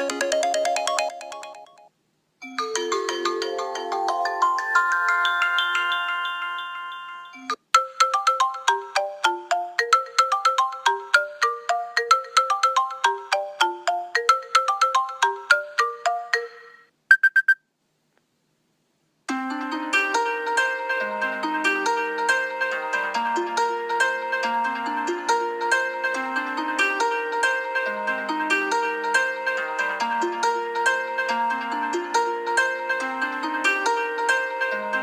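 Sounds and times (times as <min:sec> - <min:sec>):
ringtone of sustained chords: 0:00.0 - 0:16.9, 0:19.3 - 0:35.0
phone ringtone melody: 0:00.0 - 0:17.6
short beeps: 0:17.1 - 0:17.6.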